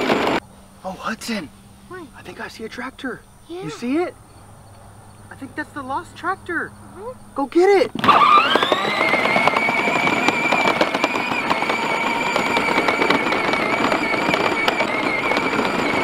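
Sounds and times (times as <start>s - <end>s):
electric motor whining: 0.0s - 0.4s, 8.0s - 16.0s
wheels crackling on ground: 0.0s - 16.0s.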